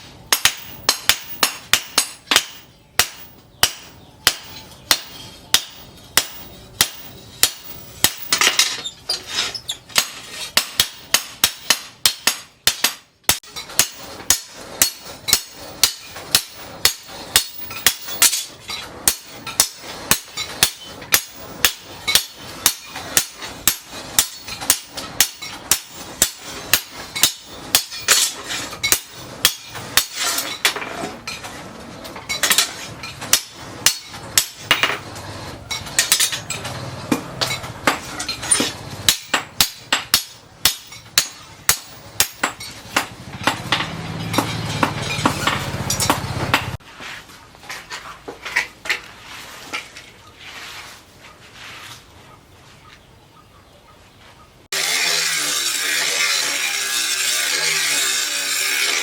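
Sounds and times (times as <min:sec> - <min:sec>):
hammer striking steel on anvil: 0:00.3 - 0:08.8, 0:10.0 - 0:30.8, 0:32.3 - 0:35.0, 0:35.7 - 0:46.8.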